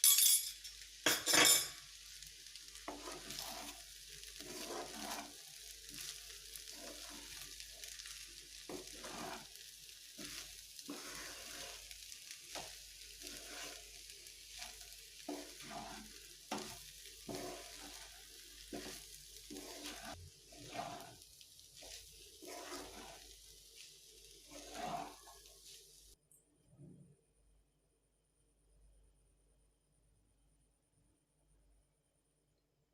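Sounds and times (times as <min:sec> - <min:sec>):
rice sizzling in a pan: 0:00.4 - 0:26.2
spatula scraping a pan: 0:01.0 - 0:26.2.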